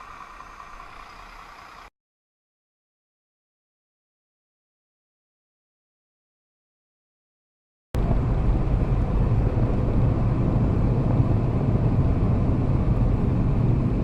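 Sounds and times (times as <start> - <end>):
car road and engine noise: 0.0 - 1.9, 8.0 - 14.0.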